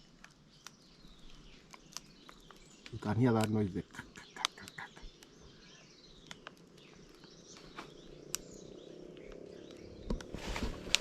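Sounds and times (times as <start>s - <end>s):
plant stem cracking and snapping: 0.0s - 5.3s, 6.2s - 7.3s
birds chirping: 0.0s - 11.0s.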